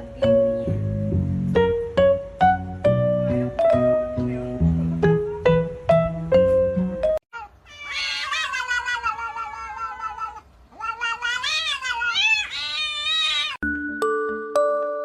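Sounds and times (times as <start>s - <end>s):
plinking background music: 0.0s - 7.2s, 13.6s - 15.0s
cat yowling: 7.3s - 13.6s.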